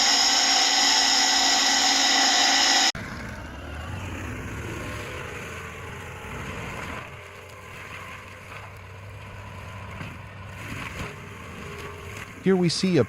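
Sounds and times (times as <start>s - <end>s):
heavy machine engine running: 0.0s - 7.9s.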